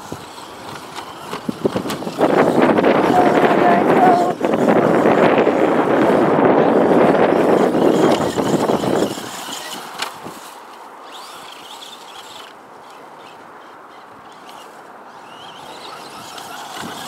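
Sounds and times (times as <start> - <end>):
wind buffeting microphone: 0.0 - 10.5, 13.9 - 17.0
rc truck electric motor whine: 0.0 - 17.0.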